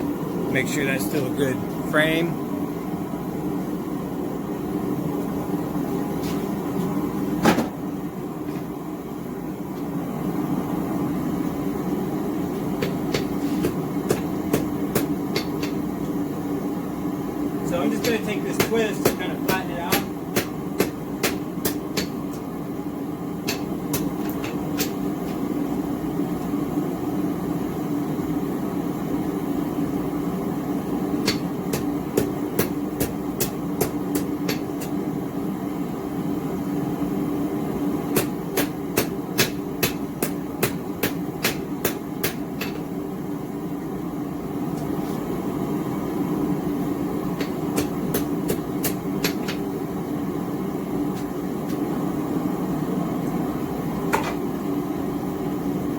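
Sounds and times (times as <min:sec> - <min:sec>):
gas forge burner rushing: 0:00.0 - 0:55.9
hammer striking hot steel: 0:12.8 - 0:15.8, 0:17.9 - 0:22.4, 0:23.4 - 0:25.1, 0:31.2 - 0:35.0, 0:38.1 - 0:42.9, 0:47.4 - 0:49.7.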